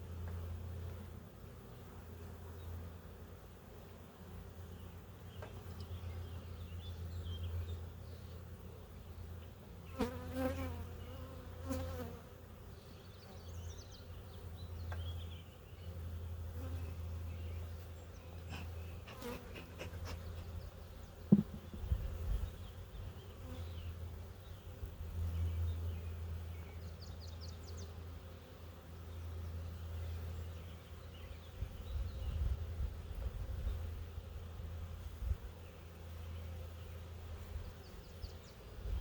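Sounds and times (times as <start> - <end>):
honeybees buzzing: 0.0 - 26.5
bee flying past: 9.6 - 12.5, 16.2 - 25.6.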